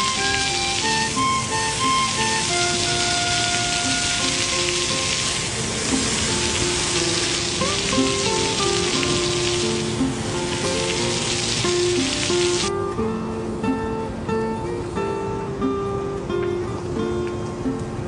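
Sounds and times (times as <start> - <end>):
heavy rain hissing: 0.0 - 12.7
slow melodic background music: 0.0 - 18.0.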